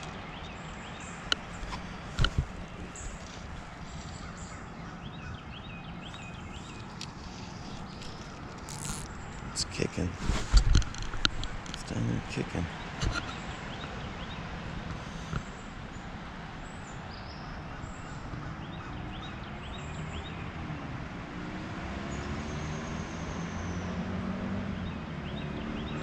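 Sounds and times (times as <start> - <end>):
bird chirps: 0.0 - 10.1
vehicle engine passing: 20.0 - 26.0.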